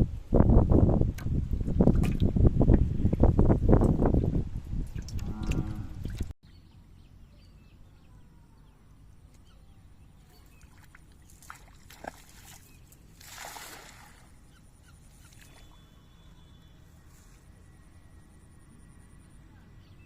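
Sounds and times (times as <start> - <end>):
faint outdoor background noise: 5.4 - 20.0
water splash: 10.6 - 14.4.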